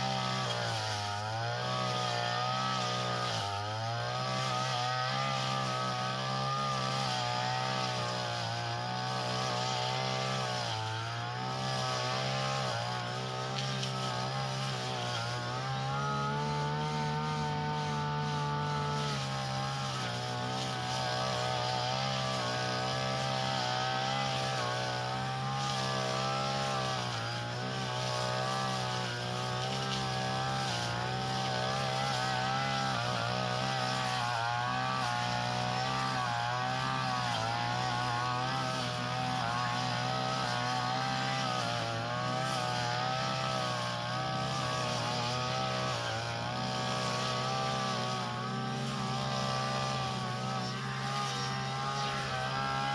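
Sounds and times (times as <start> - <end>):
grass cutter engine running: 0.0 - 52.9.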